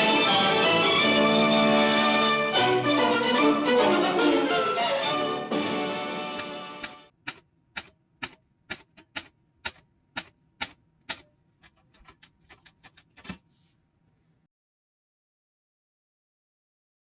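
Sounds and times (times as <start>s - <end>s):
film soundtrack clicks and crackle: 6.4s - 13.4s.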